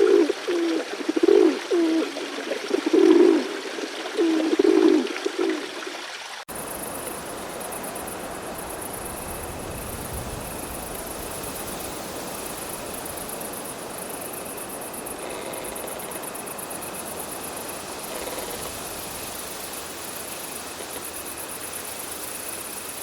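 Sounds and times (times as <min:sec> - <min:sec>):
dove cooing: 0:00.0 - 0:05.8
rushing like flowing water: 0:00.0 - 0:23.0.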